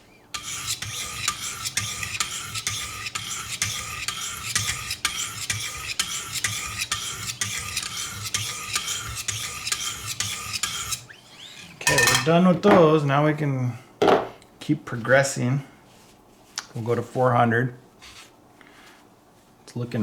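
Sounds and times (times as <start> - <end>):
sharpening stones rasping on knife: 0.4 - 11.0.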